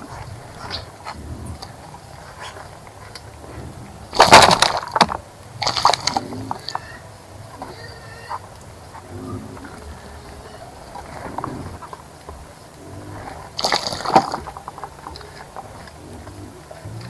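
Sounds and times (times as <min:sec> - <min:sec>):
bird splashing in water: 0:04.0 - 0:07.0, 0:09.9 - 0:17.0.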